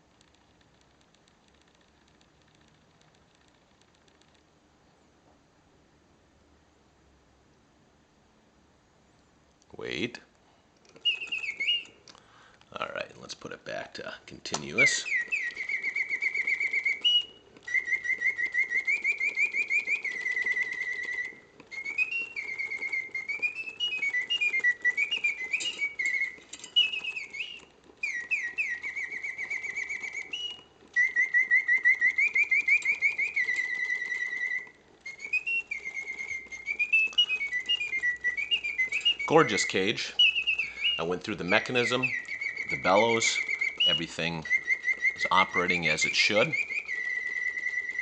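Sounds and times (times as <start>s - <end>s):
mechanical bird song whistle: 9.8s - 10.2s, 10.8s - 48.0s.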